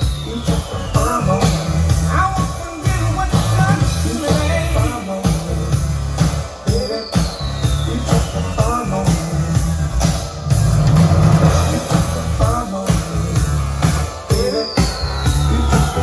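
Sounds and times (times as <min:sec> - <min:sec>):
music with drum beat and bass: 0:00.0 - 0:16.0
falling synth sweep: 0:07.4 - 0:16.0.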